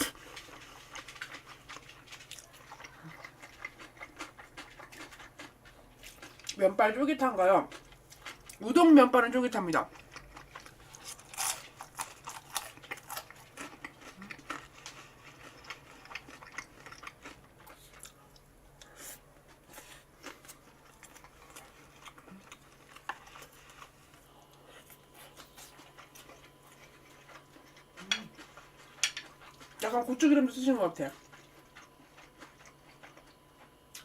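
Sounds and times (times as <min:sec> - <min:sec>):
wet chewing clicks and smacks: 0:00.4 - 0:06.6, 0:11.9 - 0:18.5, 0:31.2 - 0:34.0.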